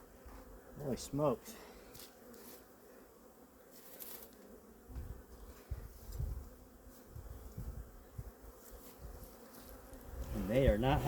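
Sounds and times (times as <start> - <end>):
honeybee colony buzzing: 0.0 - 11.0.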